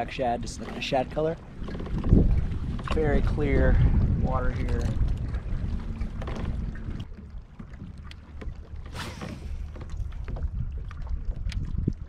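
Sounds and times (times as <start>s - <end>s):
water lapping against kayak hull: 0.0s - 12.0s
wind rumbling on microphone: 0.0s - 12.0s
short hiss: 8.9s - 9.7s.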